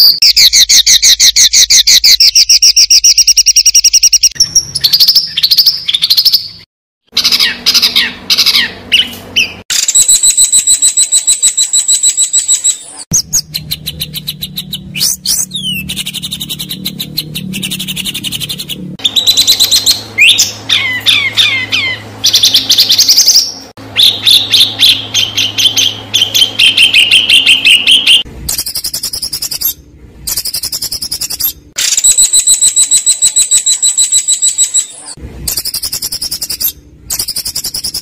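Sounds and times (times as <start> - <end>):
songbird chattering and trills: 7.2 - 29.7.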